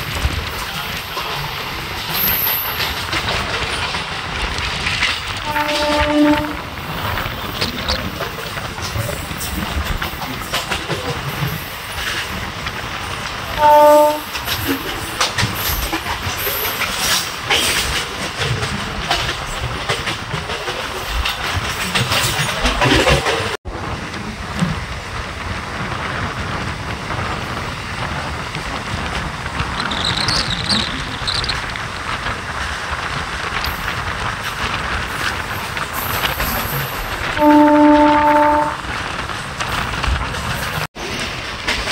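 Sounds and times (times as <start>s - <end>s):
train rumbling along tracks: 0.0s - 41.9s
wheels clacking over rail joints: 0.0s - 41.9s
train horn blast: 5.4s - 6.7s, 13.6s - 14.4s, 37.4s - 38.8s.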